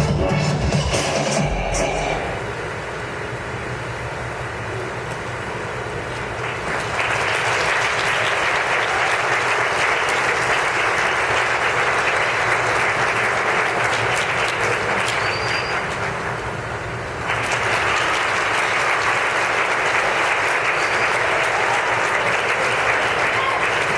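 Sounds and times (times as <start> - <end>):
audience applauding: 6.2 - 23.9.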